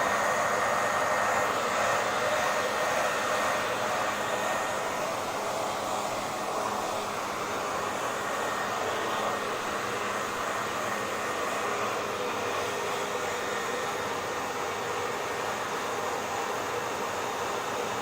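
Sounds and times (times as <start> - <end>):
hair dryer running: 0.0 - 18.0.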